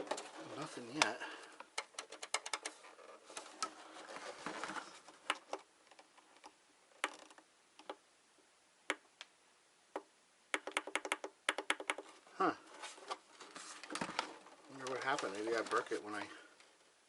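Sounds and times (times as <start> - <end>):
hands handling plastic clicks: 1.0 - 2.8.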